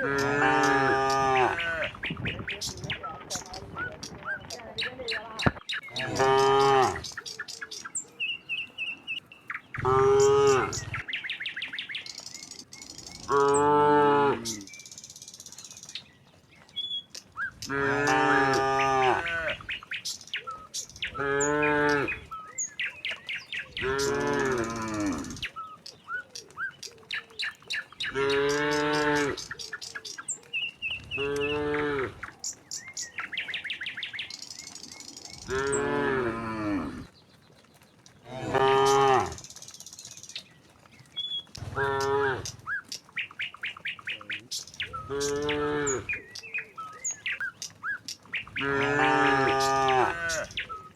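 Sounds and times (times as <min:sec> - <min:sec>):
cattle mooing: 0:00.0 - 0:02.0, 0:06.0 - 0:07.1, 0:09.8 - 0:11.0, 0:13.2 - 0:14.7, 0:17.6 - 0:19.6, 0:21.1 - 0:22.2, 0:23.8 - 0:25.5, 0:28.1 - 0:29.5, 0:31.2 - 0:32.2, 0:35.5 - 0:37.1, 0:38.3 - 0:39.4, 0:41.7 - 0:42.6, 0:45.0 - 0:46.2, 0:48.5 - 0:50.6
small birds chirping: 0:00.0 - 0:50.9.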